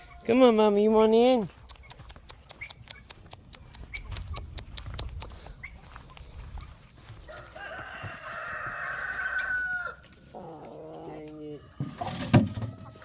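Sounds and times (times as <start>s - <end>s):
rooster crowing: 7.2s - 10.4s.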